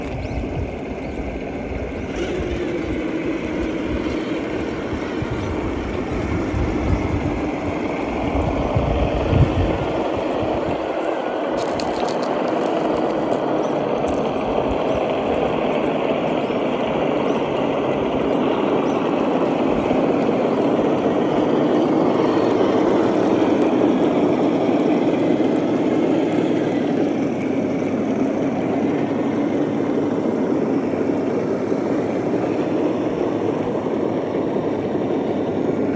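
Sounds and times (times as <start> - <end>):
electric motors whirring: 0.0 - 35.9.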